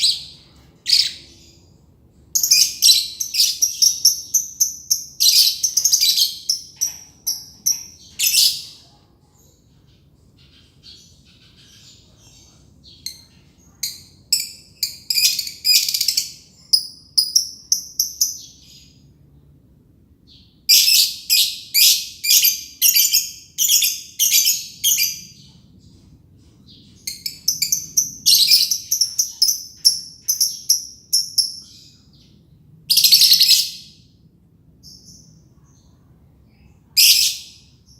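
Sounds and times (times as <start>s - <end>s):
lovebird shrill chirping: 2.4s - 8.8s, 12.9s - 19.0s, 20.6s - 25.4s, 27.0s - 32.3s, 32.9s - 34.0s.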